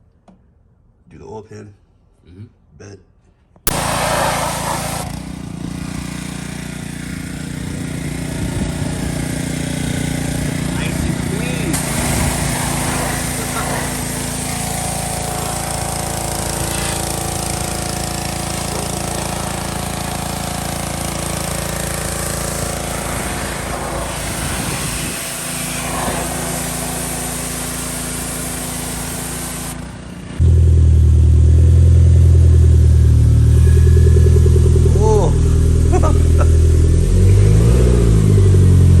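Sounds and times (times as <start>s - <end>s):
engine running: 3.6s - 39.0s
deep car engine idling: 30.4s - 39.0s.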